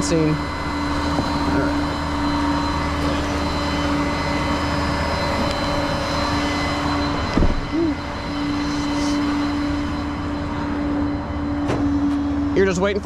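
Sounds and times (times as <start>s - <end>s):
low thump: 7.4s - 7.7s.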